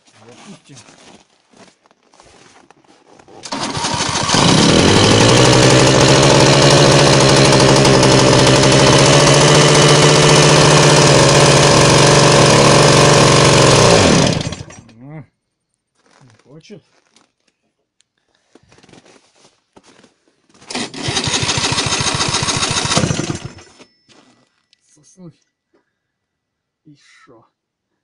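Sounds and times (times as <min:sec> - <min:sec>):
two-stroke engine starting and running: 0:03.4 - 0:14.9, 0:20.6 - 0:23.9.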